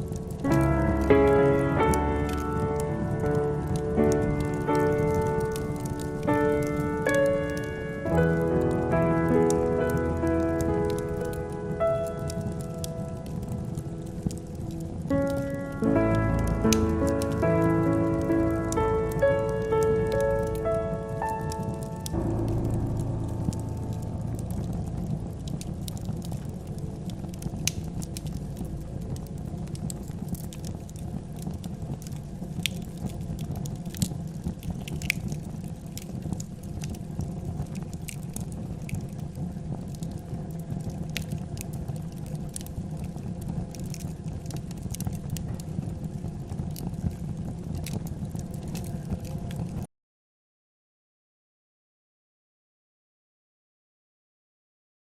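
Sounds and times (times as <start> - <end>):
wood fire crackling: 0.0 - 49.9.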